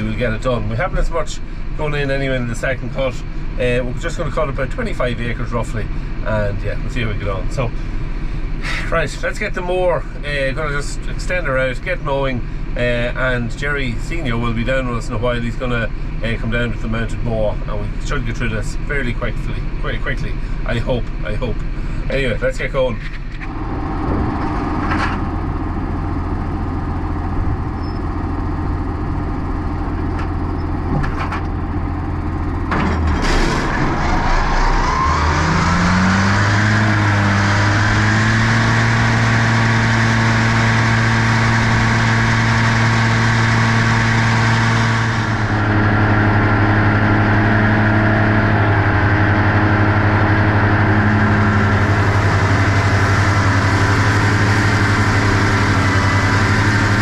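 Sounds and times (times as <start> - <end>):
tractor engine idling and revving: 0.0 - 57.0
high whine of mower: 20.4 - 57.0.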